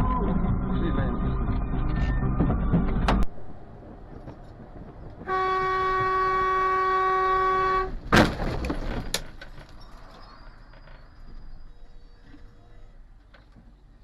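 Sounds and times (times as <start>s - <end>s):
car horn: 5.2s - 8.1s
loud impact bang: 7.9s - 9.2s.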